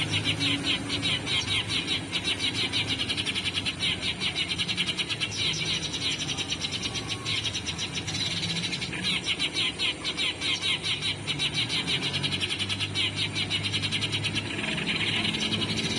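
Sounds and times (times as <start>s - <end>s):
sparrow chirping: 0.0s - 15.9s.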